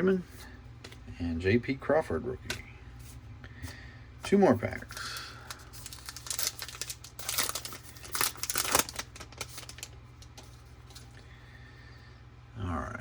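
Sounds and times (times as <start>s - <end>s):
handling of wrapper: 4.8s - 11.2s
wrapper crinkling and tearing: 4.8s - 11.2s.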